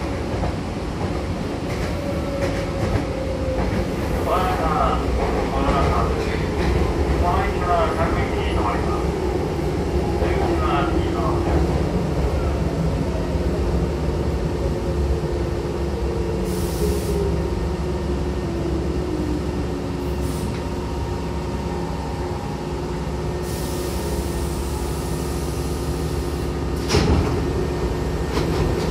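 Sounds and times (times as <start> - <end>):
train running rumble: 0.0 - 28.9
air brake hisses: 16.4 - 17.2, 23.4 - 26.5
sliding doors clunk: 26.8 - 27.5.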